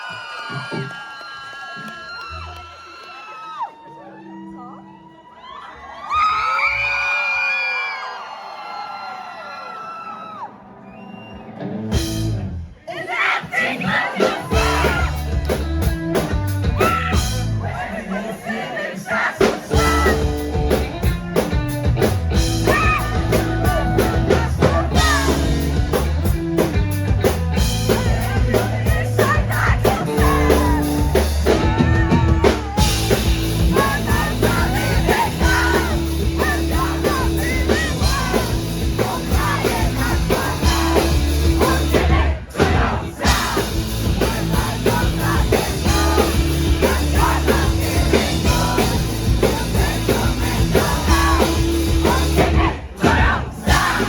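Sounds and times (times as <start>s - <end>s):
live rock band playing: 11.6s - 12.7s, 14.2s - 17.6s, 19.4s - 54.0s
drum kit: 11.9s - 12.6s, 13.9s - 17.6s, 19.4s - 54.0s
person singing: 13.7s - 20.8s, 22.6s - 26.0s, 27.7s - 54.0s
heavy bass line: 14.5s - 17.8s, 19.7s - 54.0s.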